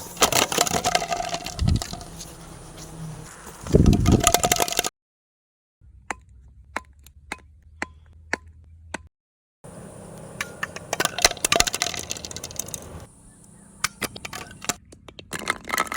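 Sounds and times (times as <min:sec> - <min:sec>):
plastic toy pieces clicking: 0:00.2 - 0:02.0, 0:10.4 - 0:13.1, 0:13.8 - 0:15.9.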